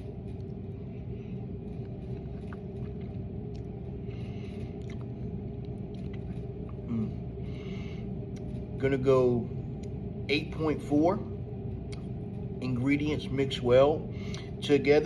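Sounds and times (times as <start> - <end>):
person chewing food: 0.0 - 8.6
steady low rumble: 0.0 - 15.0.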